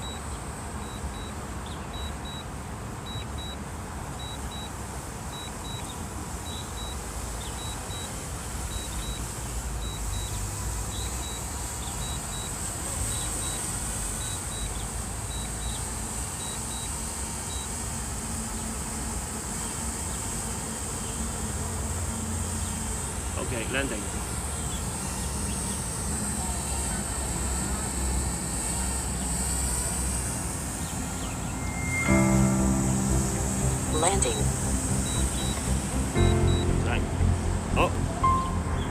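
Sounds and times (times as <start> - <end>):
high hiss: 29.5 - 38.7.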